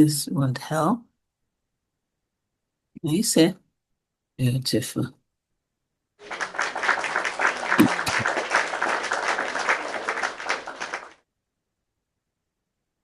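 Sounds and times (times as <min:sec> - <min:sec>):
group clapping: 0:06.2 - 0:11.2.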